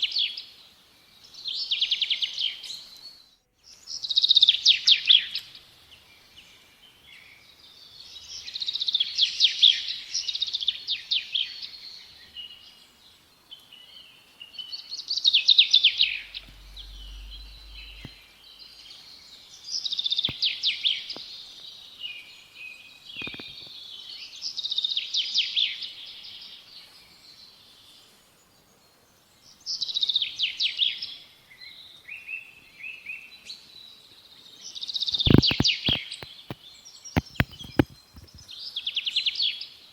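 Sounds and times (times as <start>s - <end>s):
songbird chirping: 15.9s - 19.0s, 35.2s - 38.6s.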